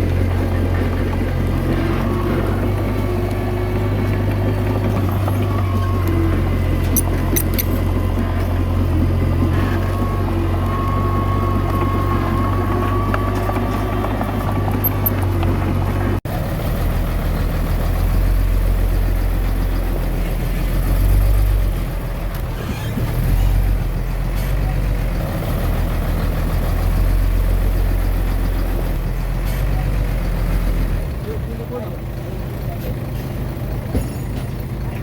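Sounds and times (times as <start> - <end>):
bulldozer diesel engine droning: 0.0 - 35.0.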